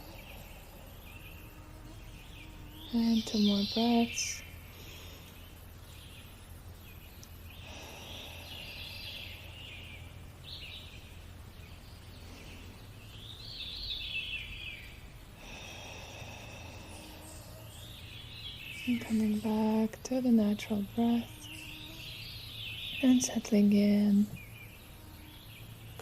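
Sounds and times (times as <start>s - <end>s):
slow deep breaths: 0.0s - 1.6s, 2.2s - 13.7s, 14.4s - 18.9s
birds chirping: 0.0s - 26.0s
steady low hum: 0.0s - 26.0s.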